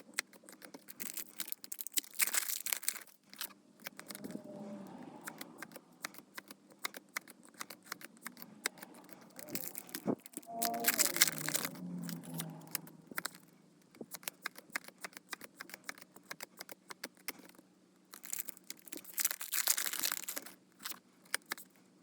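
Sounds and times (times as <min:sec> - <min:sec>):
cards handled with clicks and rustles: 0:00.0 - 0:04.4, 0:05.2 - 0:21.9
foil wrappers crinkling and tearing: 0:00.5 - 0:03.5, 0:09.4 - 0:13.4, 0:18.1 - 0:21.7.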